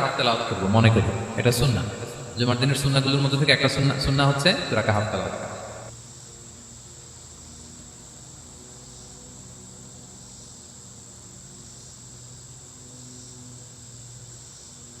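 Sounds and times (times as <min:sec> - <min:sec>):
faint low hum: 0:00.0 - 0:05.9
insects trilling: 0:00.0 - 0:15.0.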